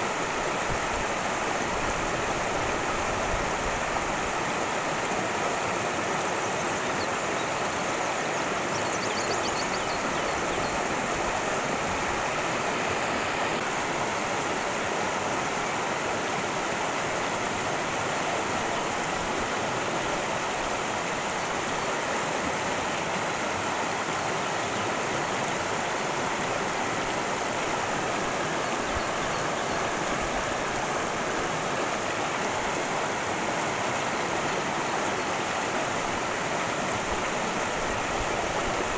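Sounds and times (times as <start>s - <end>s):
water rushing over rocks: 0.0s - 38.9s
faint high chirping: 8.4s - 11.0s.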